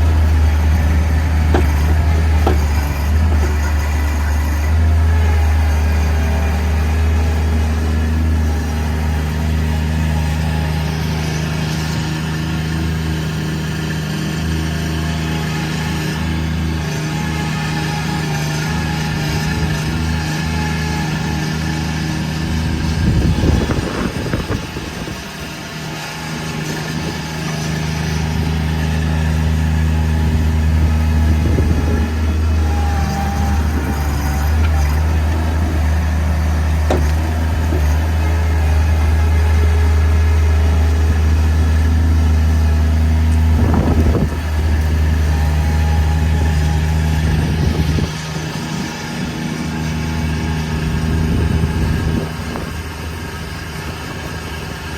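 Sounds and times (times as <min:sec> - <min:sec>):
backhoe knocks and clatters: 0:00.0 - 0:10.7, 0:26.2 - 0:49.6
loader engine running under load: 0:00.0 - 0:54.9.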